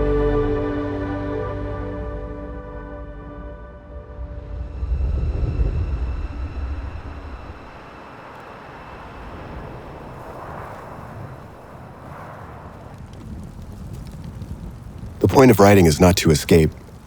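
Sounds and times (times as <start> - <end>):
wind and road noise: 4.3 - 17.0.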